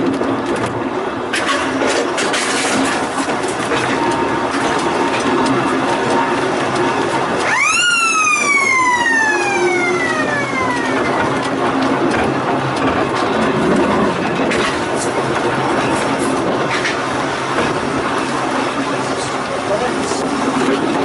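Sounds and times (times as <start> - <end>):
constant background noise: 0.0 - 21.0
high whistle-like sliding tone: 7.4 - 11.2.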